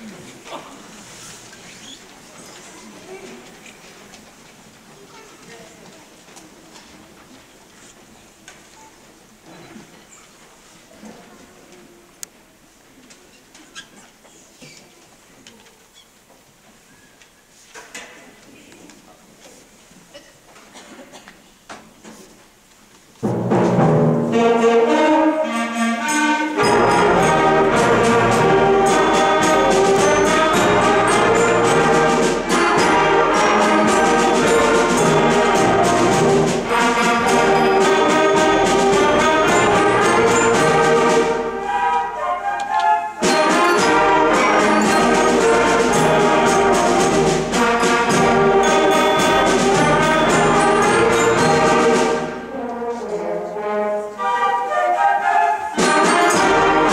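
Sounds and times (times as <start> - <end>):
percussion: 23.2 - 52.8, 55.6 - 56.9
concert band playing: 23.2 - 53.4, 54.1 - 56.9
brass: 23.2 - 56.9.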